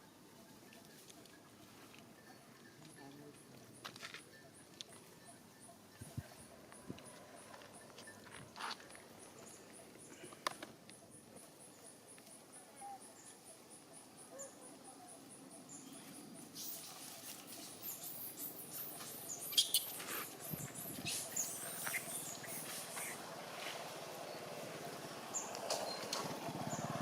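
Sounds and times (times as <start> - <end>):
animal squeaks and squeals: 16.6 - 23.2.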